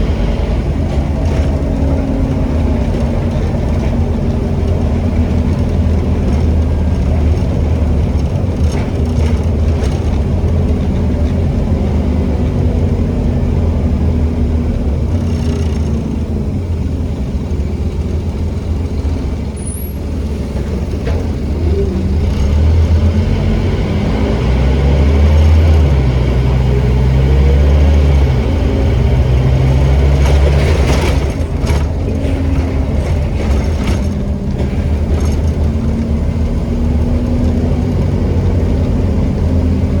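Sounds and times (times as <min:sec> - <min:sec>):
bus engine running: 0:00.0 - 0:40.0.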